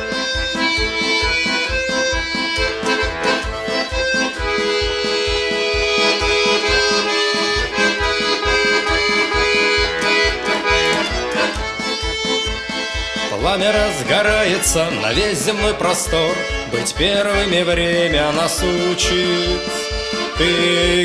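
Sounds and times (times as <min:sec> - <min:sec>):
button accordion playing: 0:00.0 - 0:21.0.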